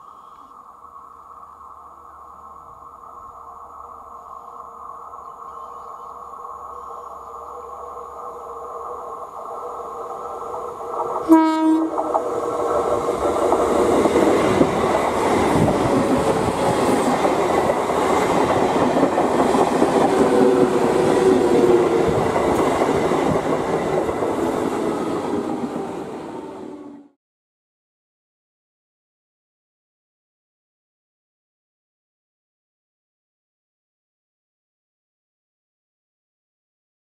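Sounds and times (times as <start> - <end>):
electric train whine: 0.0 - 27.2
train coaches rushing past: 5.4 - 27.1
train horn blast: 11.2 - 12.0.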